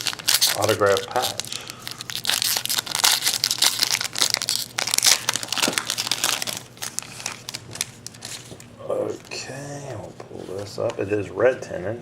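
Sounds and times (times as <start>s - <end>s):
card pack wrapper crinkling: 0.0s - 9.4s.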